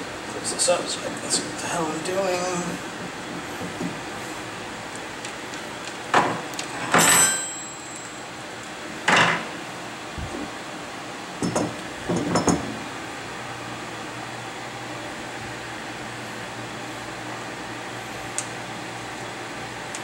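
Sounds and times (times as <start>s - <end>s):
metallic ring: 6.8s - 8.4s.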